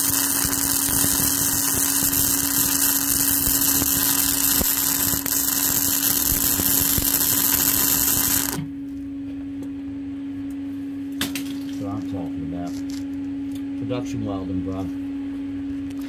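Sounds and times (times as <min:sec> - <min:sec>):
welding arc crackling and hissing: 0:00.0 - 0:08.7
constant hum: 0:00.0 - 0:16.0.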